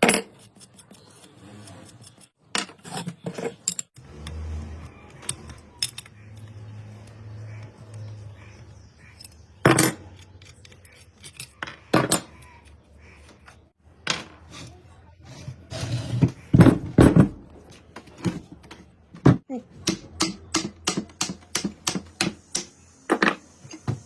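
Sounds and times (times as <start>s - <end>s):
metal tools clinking: 9.1s - 12.4s.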